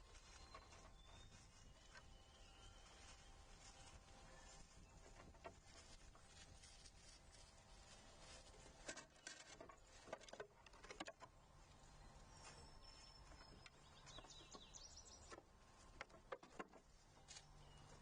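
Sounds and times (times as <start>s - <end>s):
faint bird chirps: 0.0s - 5.1s, 11.8s - 15.4s.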